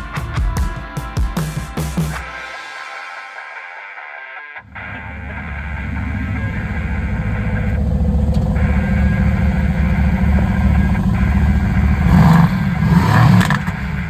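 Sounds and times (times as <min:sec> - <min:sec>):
car engine approaching: 0:04.6 - 0:14.0.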